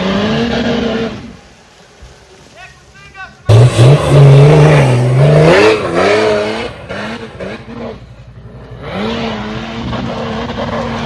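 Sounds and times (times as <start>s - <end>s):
off-road vehicle engine revving: 0.0s - 1.7s, 3.5s - 11.0s.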